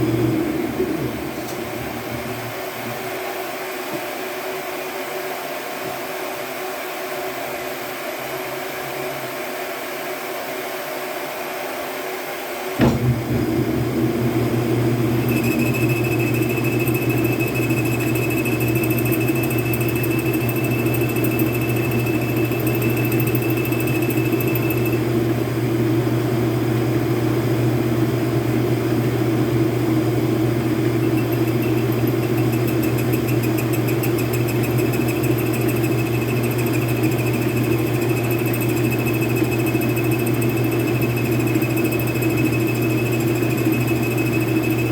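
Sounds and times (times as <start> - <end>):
lathe motor humming: 14.0 - 25.9, 29.8 - 44.9
thin high whine: 15.0 - 25.3, 30.7 - 44.9.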